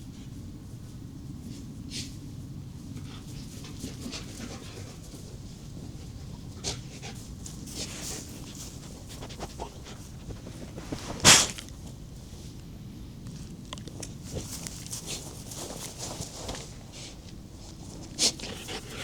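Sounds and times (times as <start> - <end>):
dog moving about: 2.9 - 12.0, 13.8 - 19.0.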